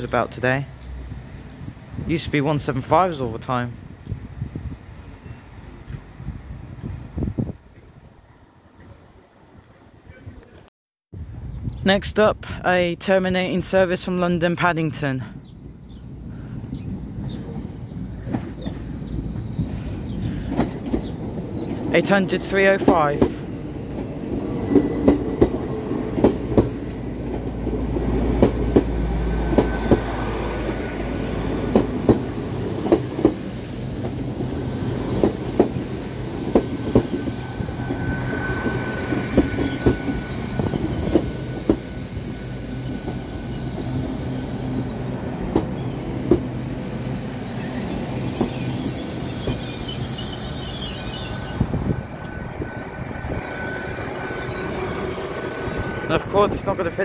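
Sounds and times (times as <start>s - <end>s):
high-pitched train squeal: 15.6s - 20.5s, 33.0s - 34.0s, 36.0s - 45.0s, 46.6s - 56.6s
train wheels clicking over rail joints: 20.3s - 21.9s, 31.6s - 38.0s.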